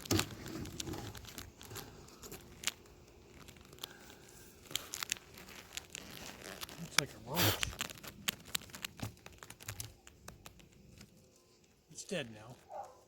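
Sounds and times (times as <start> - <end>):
beehive parts clicking and scraping: 0.0 - 13.0.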